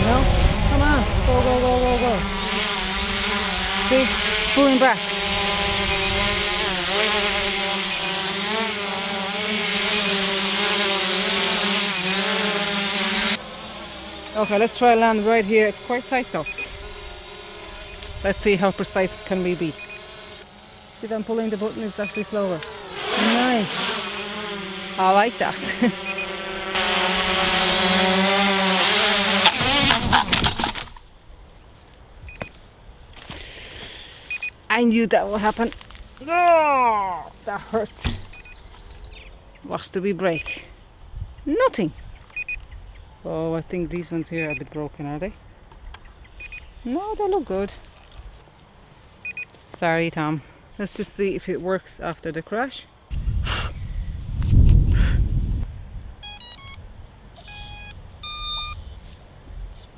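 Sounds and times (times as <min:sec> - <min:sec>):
drone propellers buzzing: 0:00.0 - 0:31.0, 0:35.3 - 0:39.4, 0:54.0 - 0:59.9.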